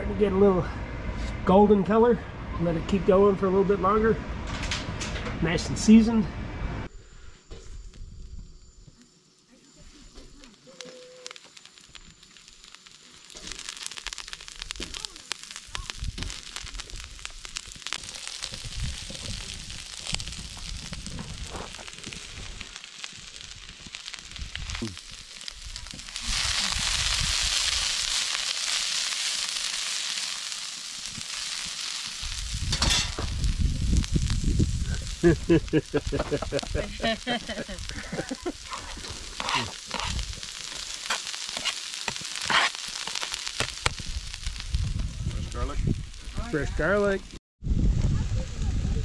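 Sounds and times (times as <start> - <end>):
burner flames: 4.3 - 49.0
vegetables sizzling in hot oil: 9.7 - 47.4.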